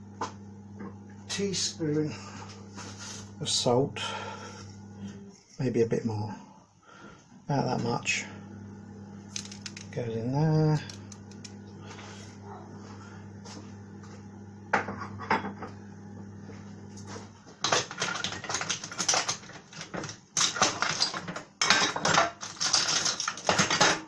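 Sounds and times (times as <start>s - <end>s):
low steady hum: 0.0s - 17.3s
kitchen utensils clattering: 17.6s - 24.0s.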